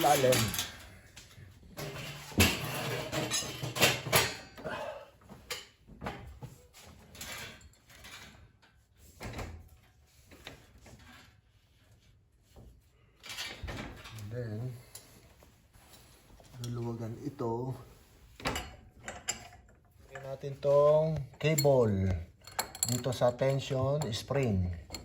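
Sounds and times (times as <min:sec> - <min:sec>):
metal hardware clinking and rattling: 0:00.0 - 0:04.6, 0:18.4 - 0:25.0.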